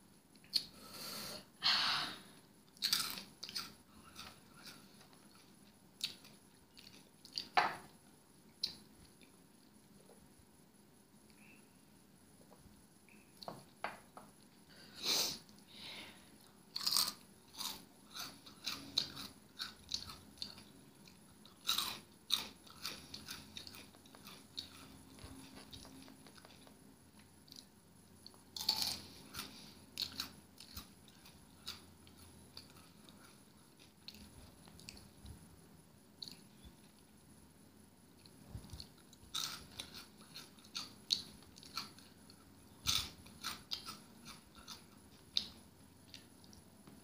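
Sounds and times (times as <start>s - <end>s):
crunching and chewing snacks: 2.7s - 7.6s, 16.4s - 35.2s, 36.2s - 37.1s, 38.2s - 46.7s.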